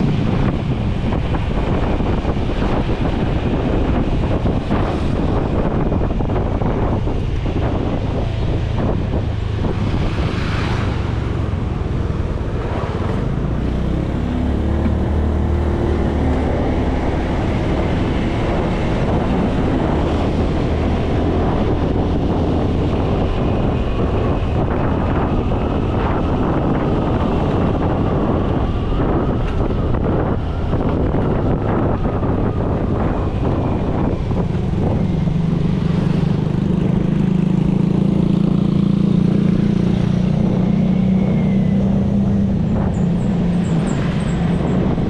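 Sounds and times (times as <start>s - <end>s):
wind noise on microphone: 0.0s - 45.0s.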